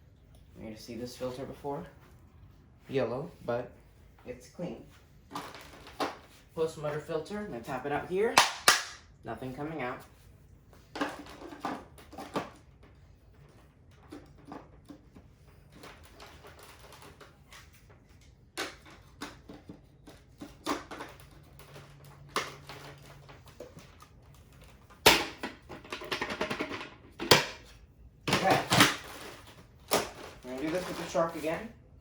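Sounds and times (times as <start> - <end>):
plastic parts clicking and knocking: 18.5 - 31.2.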